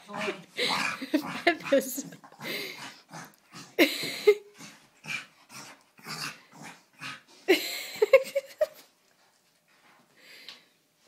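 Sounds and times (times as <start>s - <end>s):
dog growling and yipping: 0.0s - 3.9s, 4.6s - 7.3s.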